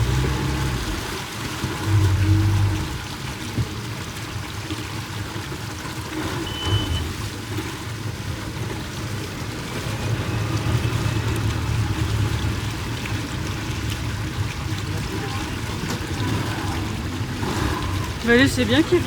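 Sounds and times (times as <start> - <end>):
boat engine running: 0.0 - 19.0
water rushing and splashing: 0.0 - 19.0
short high beep: 6.5 - 7.1.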